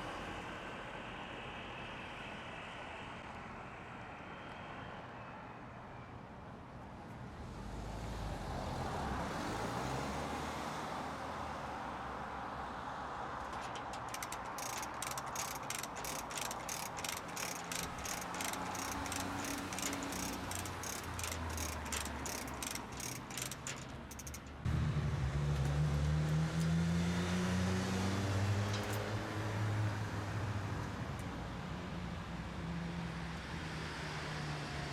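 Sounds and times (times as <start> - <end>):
ratchet clicking: 13.4 - 24.7, 28.7 - 29.2
mechanical hum: 13.4 - 24.8.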